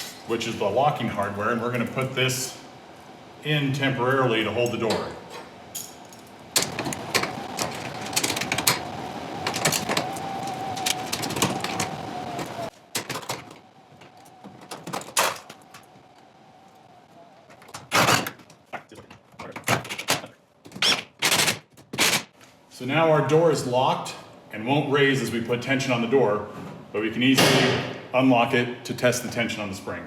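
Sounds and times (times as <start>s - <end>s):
power drill whining: 6.6s - 12.7s.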